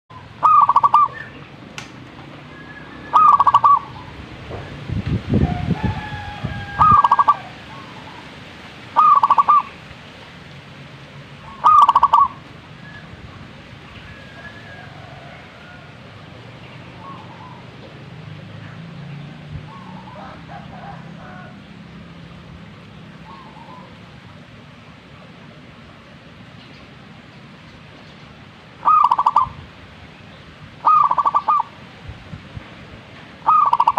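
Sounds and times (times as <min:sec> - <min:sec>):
bird calling: 0:00.1 - 0:01.8, 0:02.4 - 0:04.8, 0:05.4 - 0:09.8, 0:11.4 - 0:13.2, 0:16.6 - 0:18.0, 0:19.6 - 0:21.6, 0:23.1 - 0:24.2, 0:28.8 - 0:29.6, 0:30.8 - 0:31.8, 0:33.4 - 0:33.9
wind rumble on microphone: 0:03.5 - 0:08.2, 0:18.6 - 0:23.3, 0:29.4 - 0:30.9, 0:31.9 - 0:33.4.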